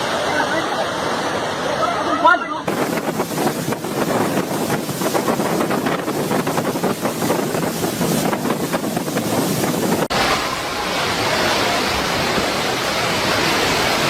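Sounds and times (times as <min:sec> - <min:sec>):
floodwater roaring: 0:00.0 - 0:14.0
wind buffeting microphone: 0:02.6 - 0:10.2.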